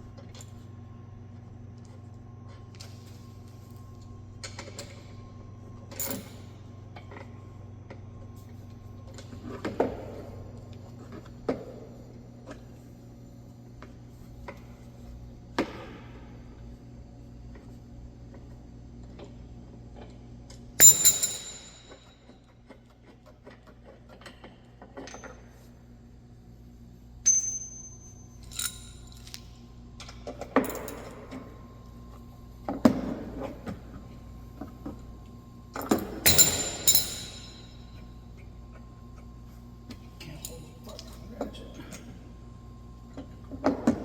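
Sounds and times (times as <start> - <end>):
metal tools clinking on metal: 20.8 - 22.3, 27.3 - 29.5, 30.6 - 31.3, 35.8 - 38.0.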